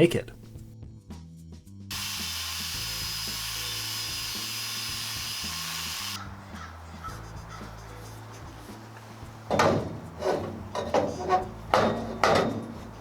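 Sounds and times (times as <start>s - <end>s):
background music: 0.0s - 13.0s
power tool whining: 1.9s - 6.2s.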